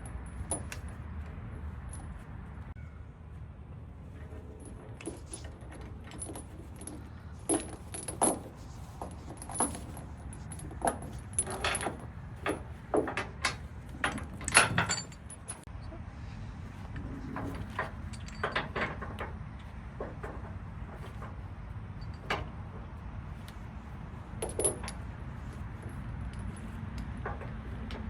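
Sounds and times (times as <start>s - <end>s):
steady low rumble: 0.0s - 28.0s
metallic clinking and clattering: 4.2s - 15.7s, 17.3s - 22.6s, 24.2s - 28.0s.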